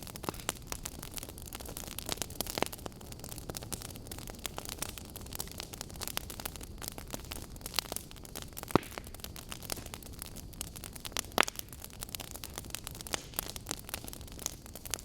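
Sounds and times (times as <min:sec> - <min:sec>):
burning logs crackling: 0:00.0 - 0:15.0
loud fire pops: 0:00.0 - 0:15.0.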